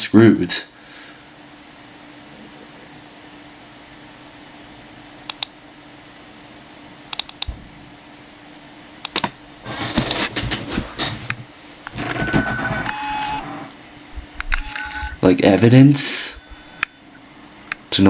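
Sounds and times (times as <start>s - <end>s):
sharp clicks: 5.3s - 5.5s, 7.1s - 7.5s, 9.0s - 9.3s, 10.0s - 10.2s, 14.2s - 15.2s, 16.2s - 17.0s
low hum: 11.8s - 15.2s.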